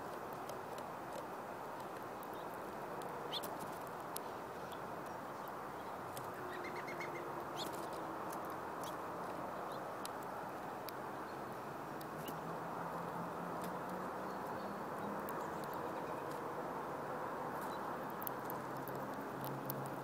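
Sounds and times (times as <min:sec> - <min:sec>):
small birds chirping: 0:00.0 - 0:20.0
steady background hiss: 0:00.0 - 0:20.0
sharp clicks: 0:17.6 - 0:20.0.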